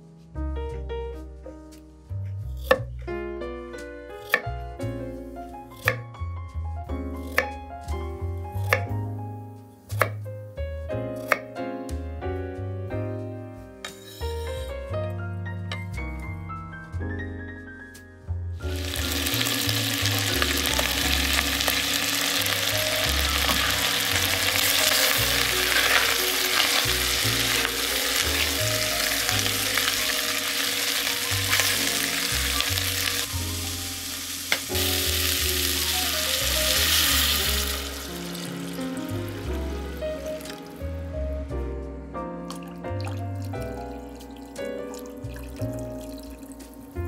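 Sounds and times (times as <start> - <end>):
water pouring into a pot: 18.6 - 33.3, 42.5 - 46.7
food sizzling in a pot: 18.6 - 40.6.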